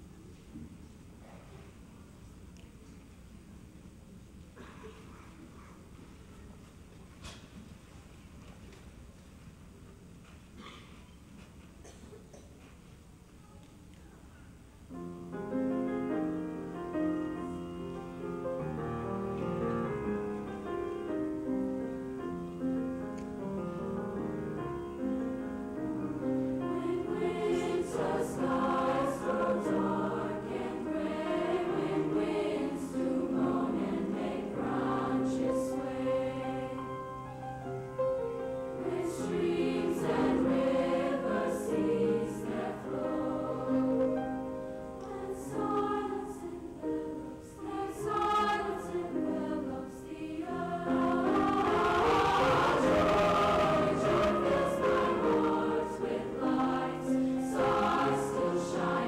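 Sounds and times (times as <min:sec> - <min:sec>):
choir singing held chords: 0:25.7 - 0:59.0.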